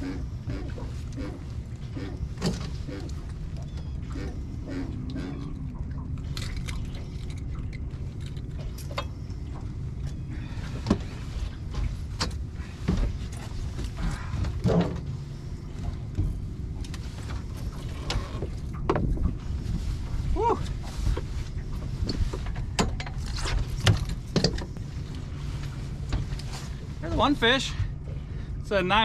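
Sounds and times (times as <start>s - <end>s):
knocks and thumps in a boat: 0.0s - 28.4s
low rumble: 0.0s - 29.0s.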